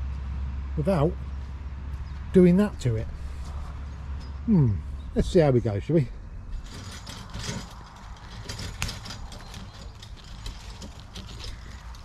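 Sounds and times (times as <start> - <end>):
laden trolley rattling and clicking: 6.5 - 12.0.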